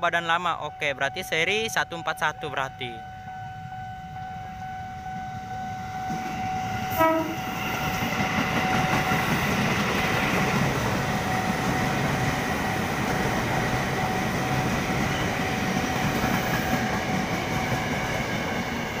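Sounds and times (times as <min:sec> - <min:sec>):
train wheels rumbling on rails: 0:04.5 - 0:19.0.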